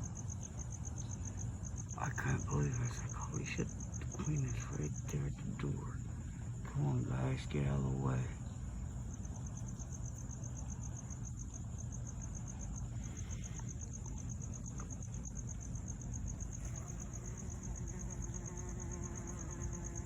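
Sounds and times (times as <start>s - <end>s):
cricket trilling: 0.0s - 20.0s
honeybees buzzing: 16.1s - 20.0s.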